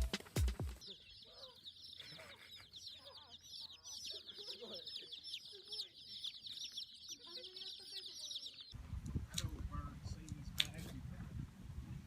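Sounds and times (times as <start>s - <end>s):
chickens clucking: 0.0s - 8.8s
chicks peeping: 0.0s - 8.8s.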